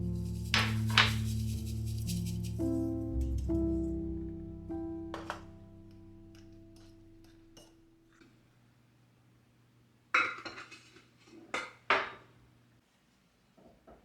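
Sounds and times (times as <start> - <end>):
soft piano music: 0.0 - 8.1
kitchenware clinking: 0.6 - 1.3, 5.1 - 5.4, 10.2 - 12.3.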